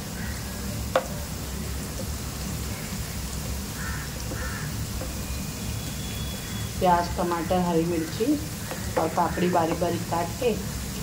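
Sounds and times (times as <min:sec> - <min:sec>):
onions sizzling in hot oil: 0:00.0 - 0:11.0
wooden spatula knocking pan: 0:00.9 - 0:01.2, 0:03.4 - 0:05.3, 0:07.9 - 0:10.2.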